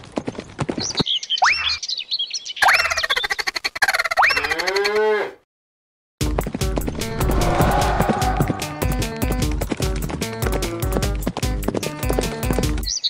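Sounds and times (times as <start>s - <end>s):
music: 6.2s - 13.0s.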